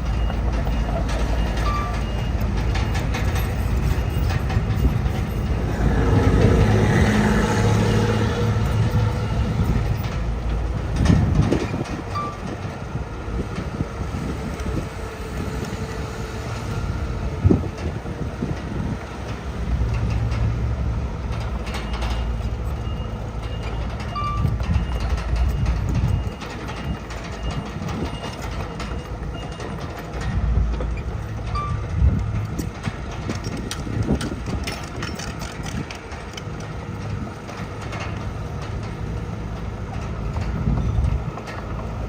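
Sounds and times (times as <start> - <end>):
diesel machinery engine rumble: 0.0 - 42.0.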